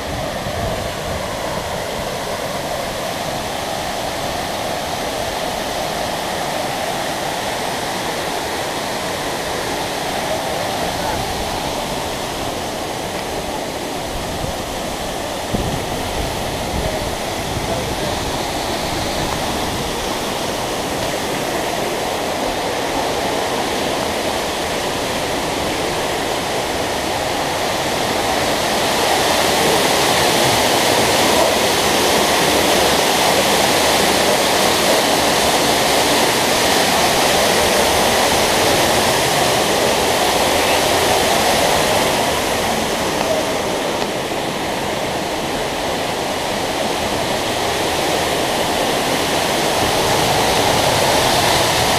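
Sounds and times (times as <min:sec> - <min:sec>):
waterfall pouring into a pool: 0:00.0 - 0:51.9.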